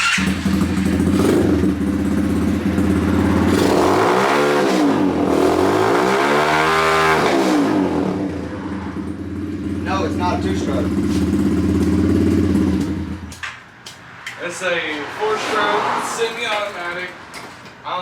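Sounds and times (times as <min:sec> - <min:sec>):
dirt bike engine idling and revving: 0:00.0 - 0:13.4.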